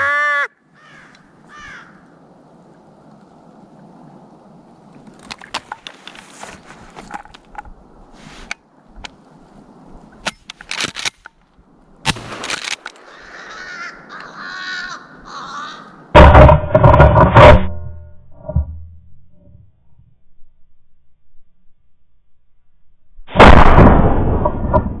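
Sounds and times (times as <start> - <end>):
crows cawing: 0.0 - 2.1, 13.0 - 16.1.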